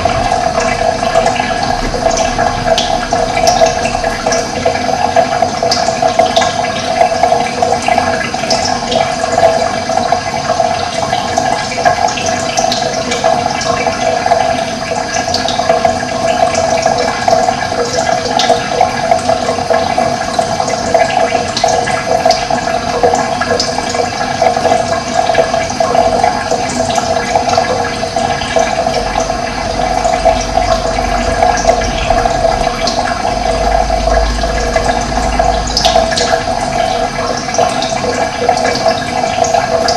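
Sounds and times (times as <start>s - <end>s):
low rumble: 0.0s - 4.6s, 29.6s - 37.4s
running water rushing: 0.0s - 39.9s.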